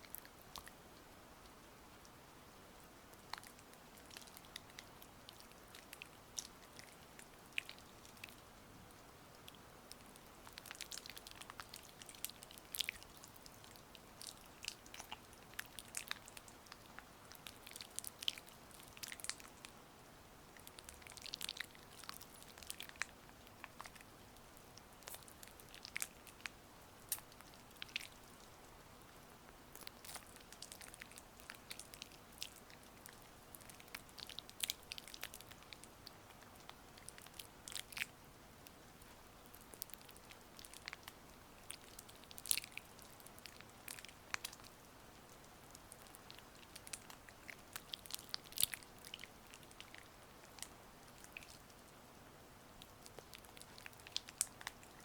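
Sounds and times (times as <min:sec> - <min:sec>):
faint rain hiss: 0:00.0 - 0:55.0.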